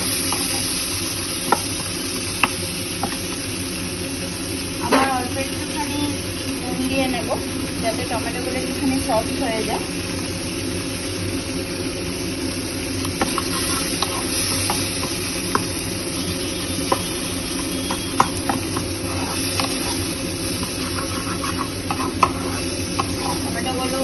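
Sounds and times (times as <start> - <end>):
vegetables sizzling in oil: 0.0 - 24.0
spatula scraping pan: 13.1 - 24.0.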